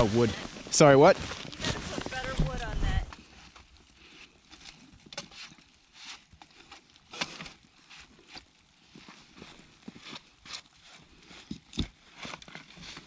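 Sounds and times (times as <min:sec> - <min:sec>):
footsteps crunching in snow: 0:00.0 - 0:13.0.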